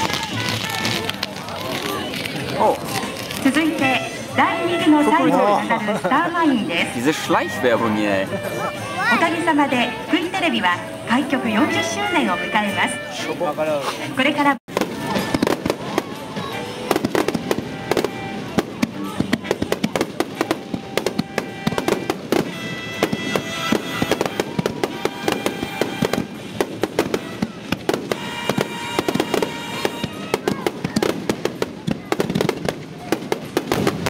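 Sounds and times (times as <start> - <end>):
fireworks bangs and crackles: 0.0 - 13.6, 14.2 - 34.0
jazz music: 3.4 - 30.4.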